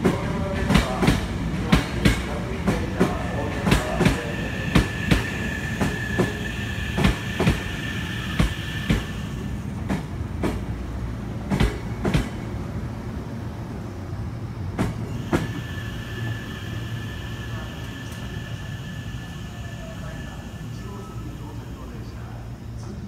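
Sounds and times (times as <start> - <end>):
steady high tone: 15.1 - 22.4.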